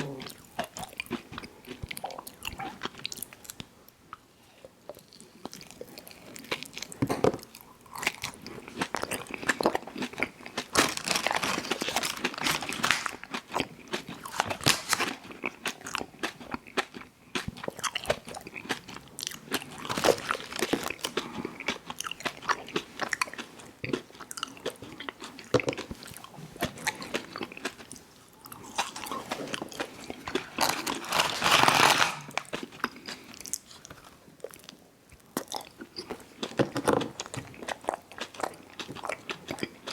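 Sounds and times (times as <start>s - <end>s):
wet mouth sounds: 0.0s - 1.2s
crunchy biting and chewing: 5.1s - 39.9s.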